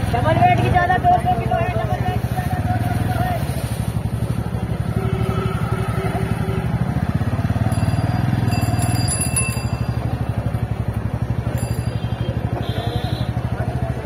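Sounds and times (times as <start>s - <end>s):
motorcycle engine running: 0.0s - 14.0s
high-pitched ringing: 7.7s - 10.4s, 11.5s - 12.3s.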